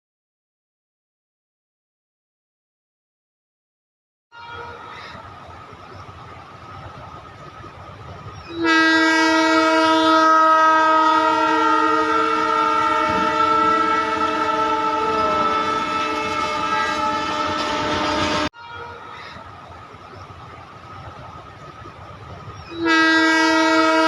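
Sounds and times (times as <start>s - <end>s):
train horn: 4.3s - 5.2s, 8.5s - 19.4s, 22.7s - 24.0s.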